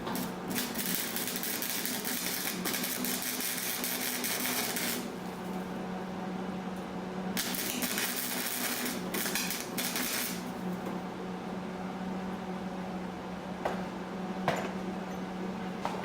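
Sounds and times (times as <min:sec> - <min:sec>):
crackling hiss bursts: 0:00.0 - 0:05.2, 0:07.4 - 0:10.5
steady low hum: 0:00.0 - 0:15.9.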